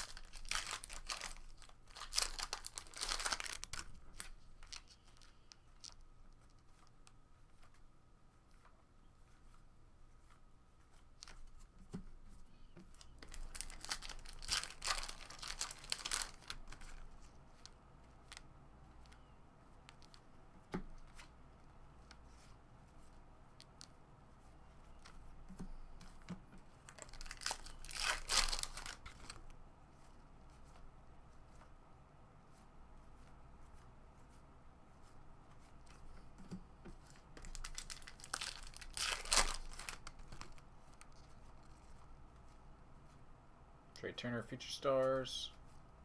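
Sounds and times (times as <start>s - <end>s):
foil wrappers tearing and crinkling: 0.0s - 6.0s, 13.0s - 17.0s, 26.9s - 29.4s, 37.4s - 40.6s.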